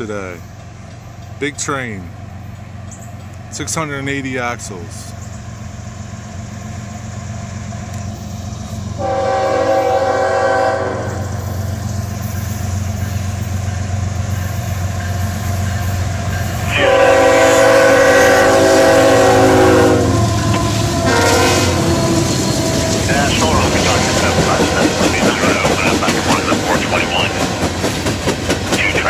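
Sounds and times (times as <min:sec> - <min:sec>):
locomotive rumble: 0:00.0 - 0:29.0
train air horn blasts: 0:09.0 - 0:11.5, 0:16.6 - 0:27.8.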